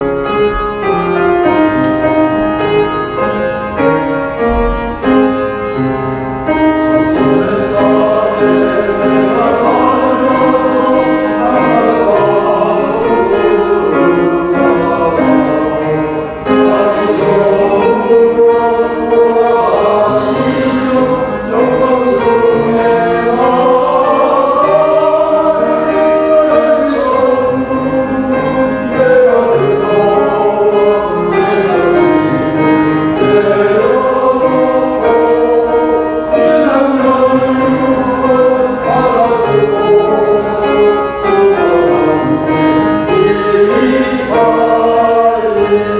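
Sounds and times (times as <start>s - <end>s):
instrumental accompaniment: 0.0s - 45.9s
men's choir singing a hymn: 0.0s - 45.9s.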